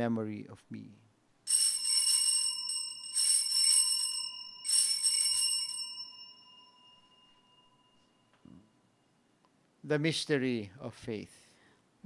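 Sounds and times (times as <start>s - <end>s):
altar bells jingling: 1.5s - 8.3s.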